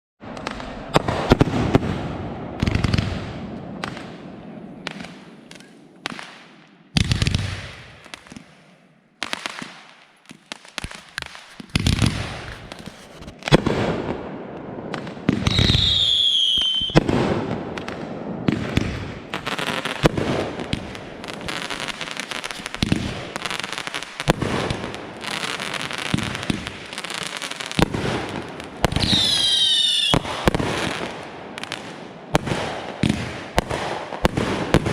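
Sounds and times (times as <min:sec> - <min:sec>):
fireworks bangs and crackling: 0:00.2 - 0:34.9
firework whistle: 0:15.4 - 0:17.2, 0:28.9 - 0:30.6.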